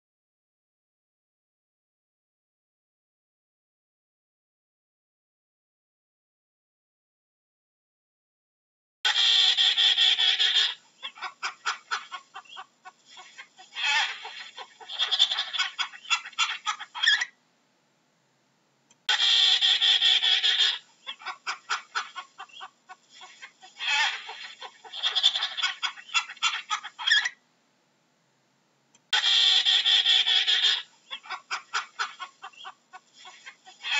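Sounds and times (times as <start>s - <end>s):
penguin braying call: 9.1s - 11.2s, 19.1s - 21.4s, 29.2s - 31.4s.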